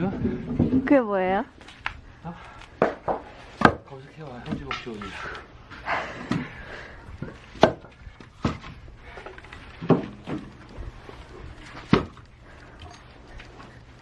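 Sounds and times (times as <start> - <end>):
axe splitting firewood: 2.7 - 5.4, 6.2 - 6.6, 7.2 - 10.7, 11.6 - 12.9.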